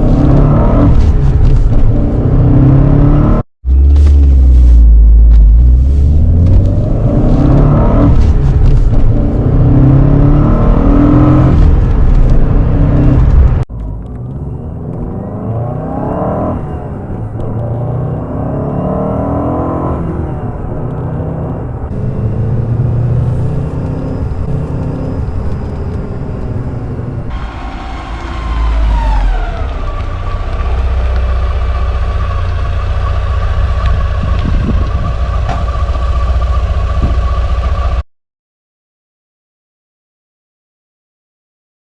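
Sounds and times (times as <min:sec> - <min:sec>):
car engine revving: 0:00.0 - 0:38.0
engine idling with whine: 0:21.6 - 0:38.0.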